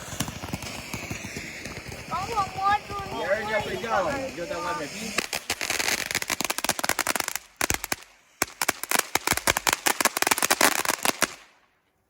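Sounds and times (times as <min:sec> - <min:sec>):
firecrackers cracking rapidly: 0:00.0 - 0:11.6.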